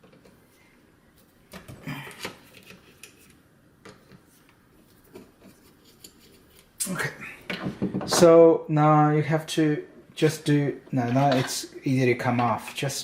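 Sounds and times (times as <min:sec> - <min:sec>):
screwdriver metal clicks and scrapes: 0:05.4 - 0:06.7.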